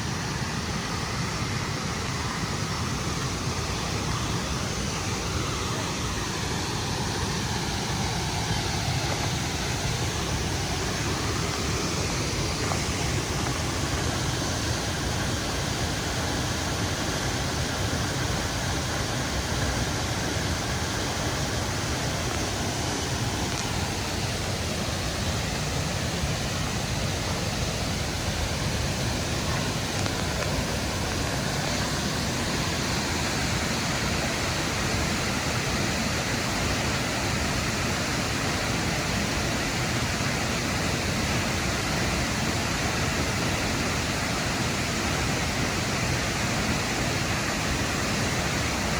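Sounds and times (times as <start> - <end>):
rushing water: 0.0 - 48.9.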